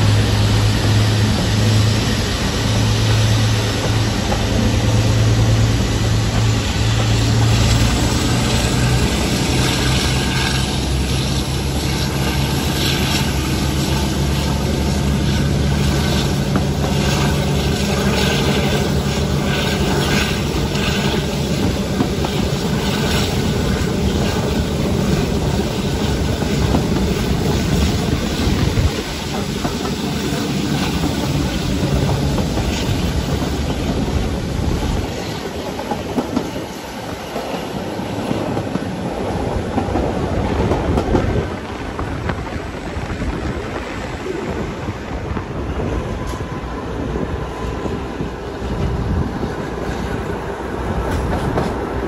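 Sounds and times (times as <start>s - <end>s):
diesel engine drone: 0.0s - 22.2s.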